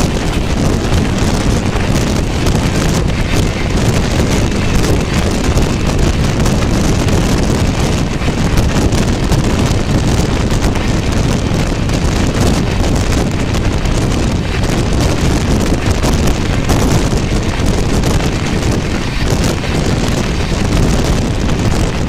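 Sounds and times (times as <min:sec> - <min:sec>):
train running at high speed: 0:00.0 - 0:22.0
wind rushing over microphone: 0:00.0 - 0:22.0.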